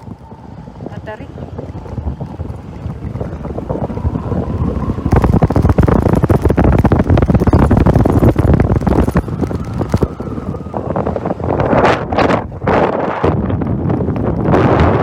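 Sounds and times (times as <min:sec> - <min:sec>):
vehicle running noise: 0:00.0 - 0:14.5
wind buffeting microphone: 0:00.0 - 0:15.0.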